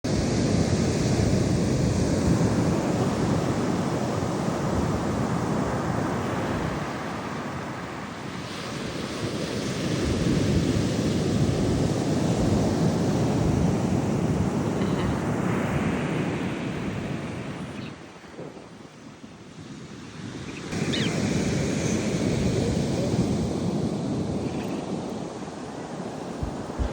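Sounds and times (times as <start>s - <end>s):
wind buffeting microphone: 0.4s - 26.9s
ocean surf breaking: 19.8s - 26.9s.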